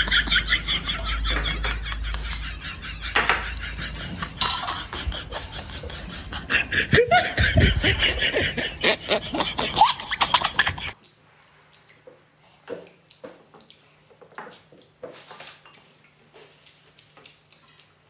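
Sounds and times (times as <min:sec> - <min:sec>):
snickering laughter: 0:00.0 - 0:11.0.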